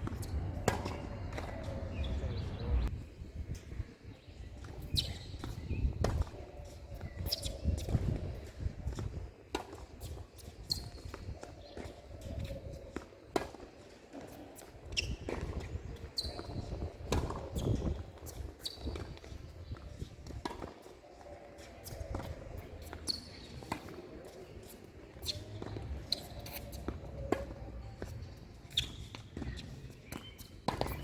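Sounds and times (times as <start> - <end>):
wind rumble on microphone: 0.0 - 9.3, 15.1 - 20.4
shoe squeaks: 4.9 - 5.6, 7.2 - 7.9, 14.9 - 19.2, 21.6 - 31.0.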